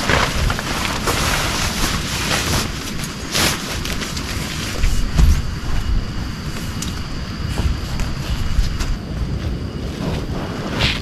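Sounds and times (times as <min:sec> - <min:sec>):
wind buffeting microphone: 0:04.6 - 0:11.0.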